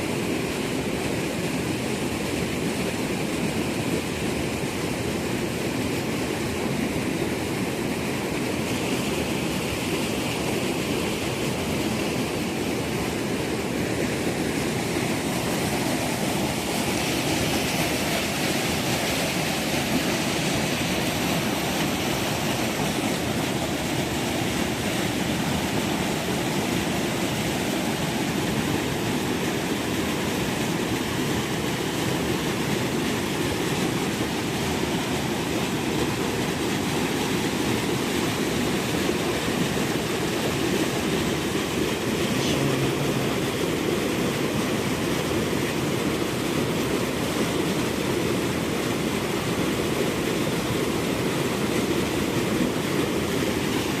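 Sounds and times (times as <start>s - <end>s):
steady rain falling: 11.6s - 54.0s.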